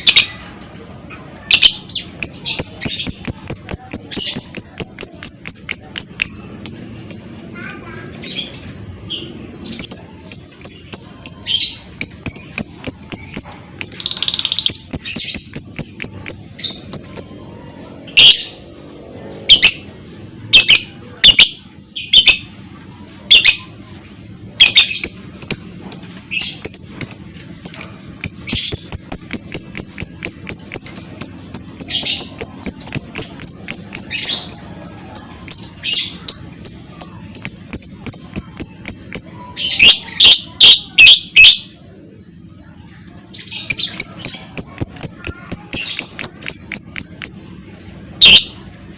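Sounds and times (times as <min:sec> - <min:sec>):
lovebird chirping: 0:01.4 - 0:08.5, 0:09.1 - 0:17.4, 0:24.6 - 0:41.7, 0:43.4 - 0:47.6, 0:48.2 - 0:48.6.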